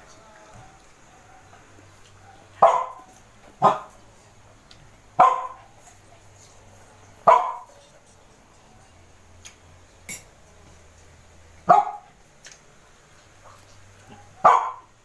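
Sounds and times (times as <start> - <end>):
dog barking: 2.2 - 4.0, 5.2 - 5.7, 7.2 - 7.7, 11.6 - 12.1, 14.0 - 14.9.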